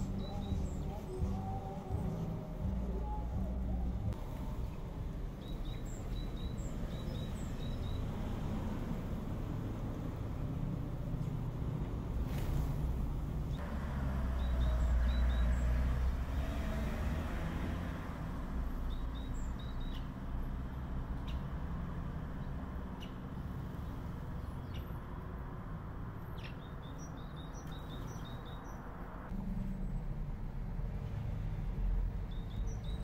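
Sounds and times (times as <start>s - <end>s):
small birds chirping: 0.0s - 9.0s, 14.2s - 16.2s, 18.6s - 21.6s, 22.3s - 25.2s, 26.2s - 28.9s, 32.1s - 33.0s.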